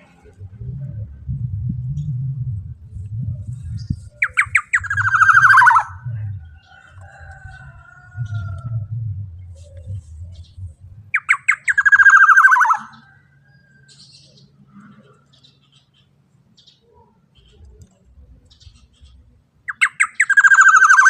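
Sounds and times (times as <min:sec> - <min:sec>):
bird harsh buzzy call: 0:04.3 - 0:06.0, 0:11.2 - 0:13.0.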